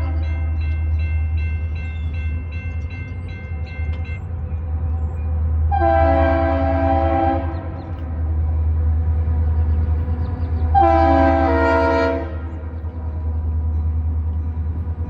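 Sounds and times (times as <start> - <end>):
diesel locomotive engine rumbling: 0.0 - 15.0
locomotive air horn: 5.7 - 7.7, 10.7 - 12.7.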